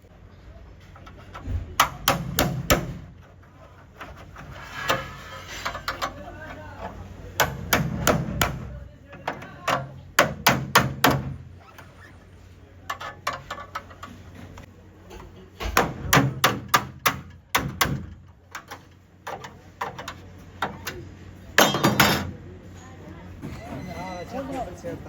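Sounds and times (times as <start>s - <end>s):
hammer striking car sheet metal: 1.3s - 3.3s, 7.3s - 11.5s, 15.6s - 18.8s, 21.6s - 22.3s.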